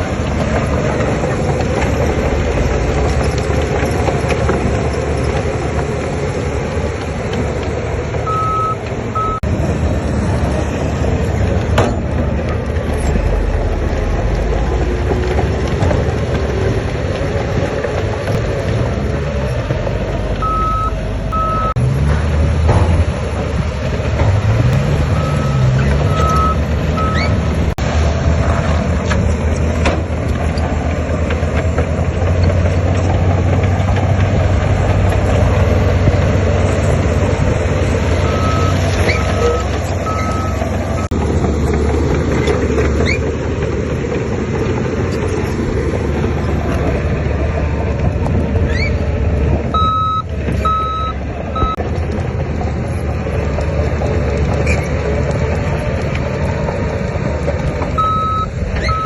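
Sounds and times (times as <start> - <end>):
diesel earthmoving machinery running: 0.0 - 59.0
reversing alarm beeping: 8.2 - 9.4, 20.4 - 21.8, 25.1 - 27.4, 38.2 - 41.1, 49.8 - 51.8, 58.0 - 59.0.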